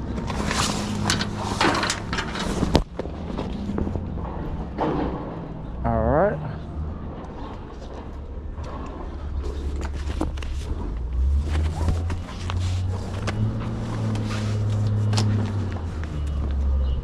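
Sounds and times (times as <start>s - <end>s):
bungee hooks clicking and clanking: 0.0s - 2.9s.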